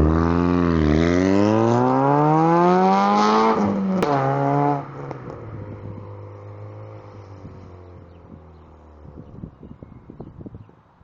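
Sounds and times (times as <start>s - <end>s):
car engine accelerating hard: 0.0s - 8.7s.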